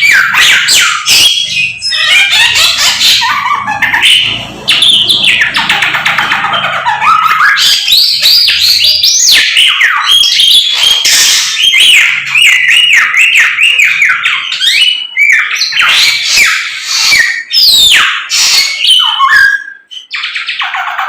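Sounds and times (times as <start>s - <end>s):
bird singing whistled phrases: 7.0s - 20.8s.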